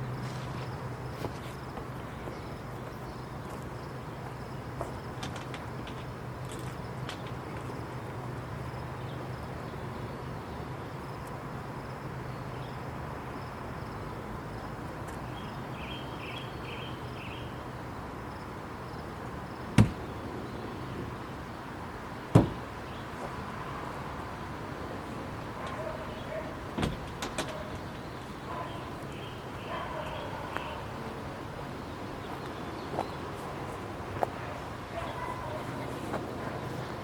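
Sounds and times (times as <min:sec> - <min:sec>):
outdoor background noise: 0:00.0 - 0:37.0
sharp knocks: 0:19.8 - 0:20.0, 0:22.3 - 0:22.6.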